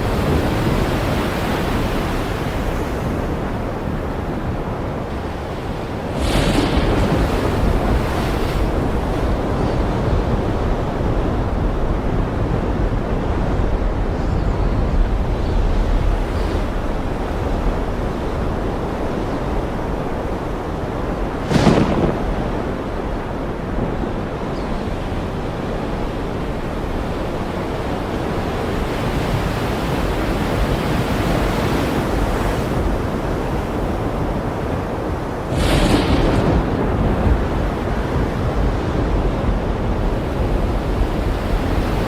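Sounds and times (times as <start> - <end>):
ocean surf rushing: 0.0 - 42.0
sharp wave crash: 6.0 - 9.1, 21.4 - 23.2, 35.4 - 37.9.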